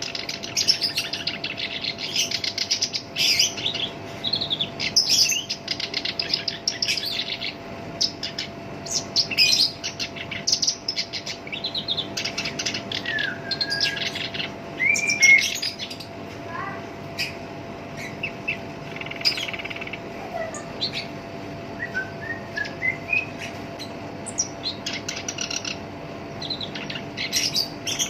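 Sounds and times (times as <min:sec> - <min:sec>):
warbler singing harsh song: 0:00.0 - 0:28.0.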